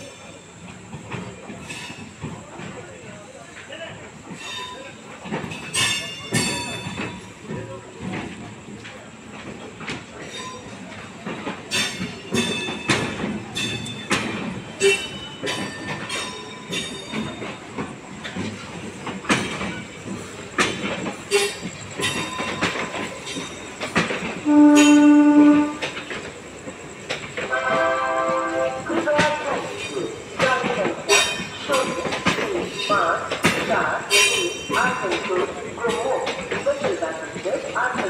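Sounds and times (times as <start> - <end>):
train wheels clanking and squealing: 0.0 - 38.0
train horn: 24.4 - 25.9, 27.5 - 29.0.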